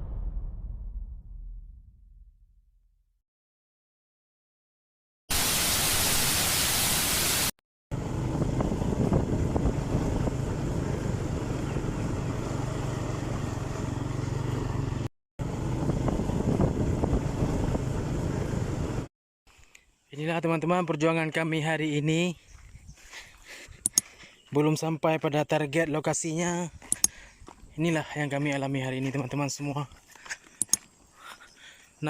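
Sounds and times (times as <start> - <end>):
loud even hiss: 5.3 - 7.5
vehicle engine humming: 7.9 - 19.1
wind rushing: 8.1 - 11.6.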